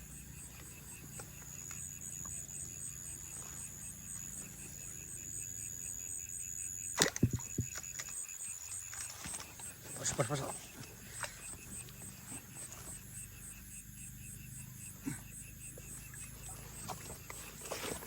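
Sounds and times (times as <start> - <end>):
crickets chirping: 0.0 - 18.0
high-pitched insect trill: 0.0 - 18.0
sharp knocks: 7.0 - 7.8.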